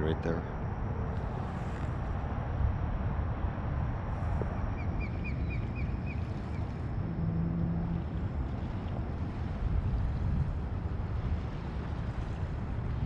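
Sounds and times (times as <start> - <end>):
low hum: 0.0 - 13.0
water noise: 0.0 - 13.0
wind: 0.0 - 13.0
bird chirping: 4.8 - 6.6.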